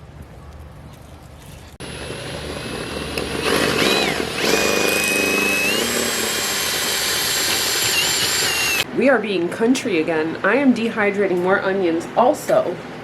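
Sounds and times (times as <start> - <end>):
motor whining: 1.8 - 8.9.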